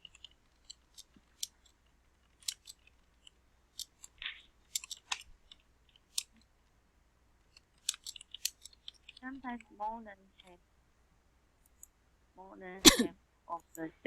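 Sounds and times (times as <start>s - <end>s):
faint keyboard clicks: 0.0s - 6.5s, 7.4s - 10.6s.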